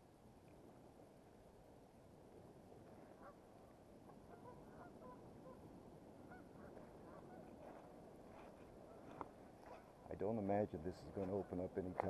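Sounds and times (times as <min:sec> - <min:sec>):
low steady background: 0:00.0 - 0:12.0
faint bird calls: 0:03.0 - 0:10.1.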